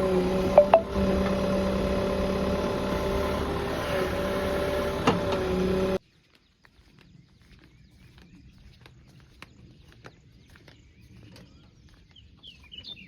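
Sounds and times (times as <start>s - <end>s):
diesel machinery whining: 0.0s - 6.0s.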